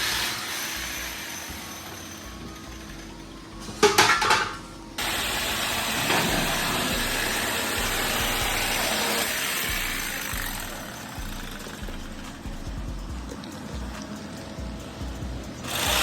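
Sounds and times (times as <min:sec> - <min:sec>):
steady mechanical noise: 0:00.0 - 0:16.0
sharp metallic clanks: 0:03.7 - 0:04.8.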